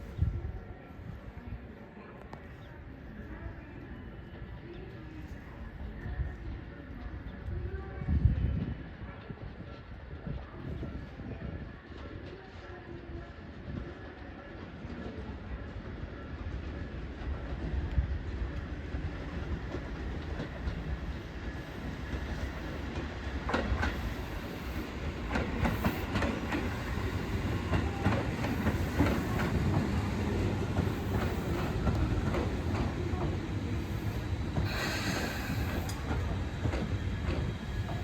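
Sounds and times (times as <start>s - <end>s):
electric train rumble: 15.4s - 38.0s.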